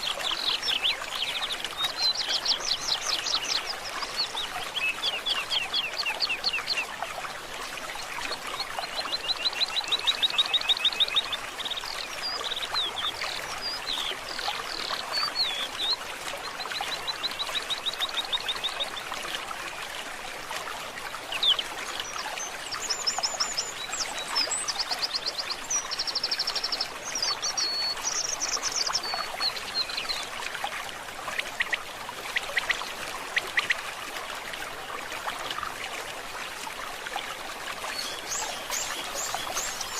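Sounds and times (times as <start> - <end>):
babbling stream: 0.0 - 39.9
birds singing: 14.8 - 15.9, 21.3 - 30.3, 37.9 - 39.9.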